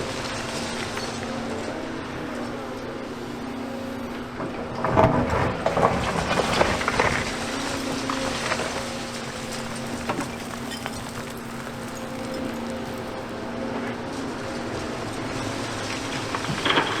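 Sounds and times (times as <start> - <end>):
excavator engine running: 0.0 - 17.0
rubble crashing and clattering: 4.4 - 17.0.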